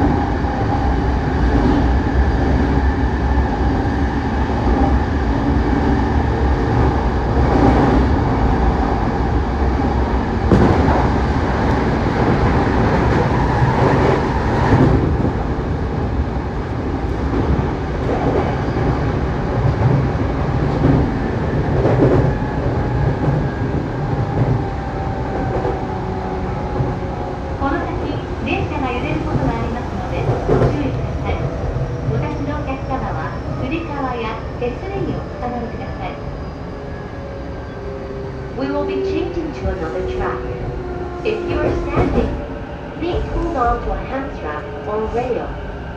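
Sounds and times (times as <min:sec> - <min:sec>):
train wheels rumbling on rail: 0:00.0 - 0:45.9
rail joint clacks: 0:17.0 - 0:33.8.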